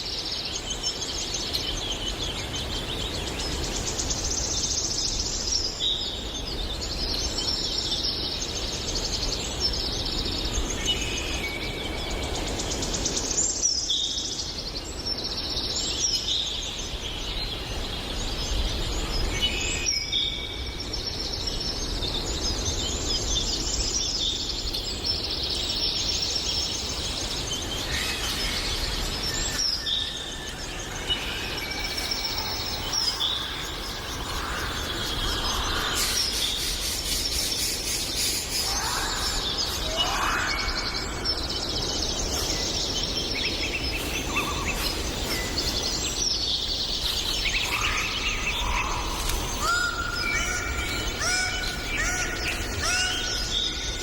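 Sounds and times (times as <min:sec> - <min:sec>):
birds chirping and trilling: 0:00.0 - 0:54.0.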